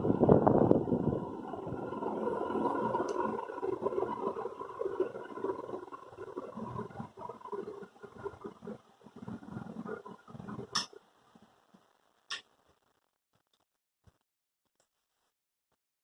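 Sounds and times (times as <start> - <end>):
ceiling fan whirring: 0.0 - 4.6
faint hum: 0.0 - 10.8.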